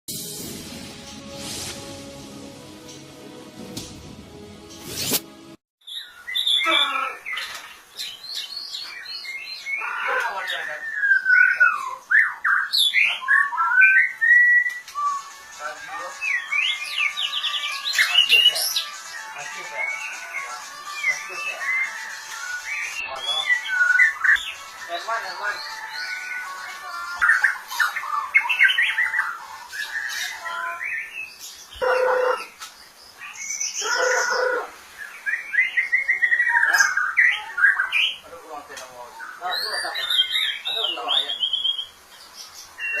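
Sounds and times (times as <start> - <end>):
bird singing whistled notes: 5.8 - 31.4, 35.1 - 38.3, 39.2 - 42.0.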